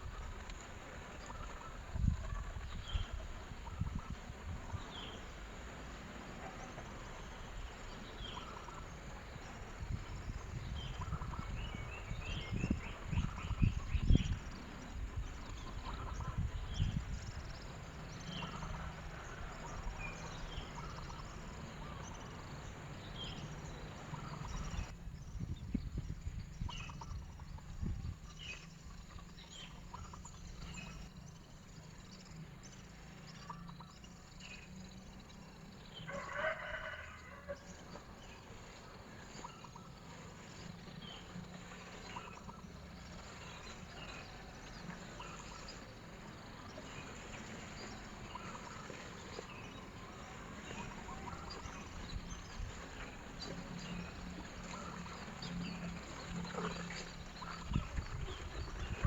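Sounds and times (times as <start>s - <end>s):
small birds chirping: 0.0s - 59.0s
rooster crowing: 36.0s - 37.8s.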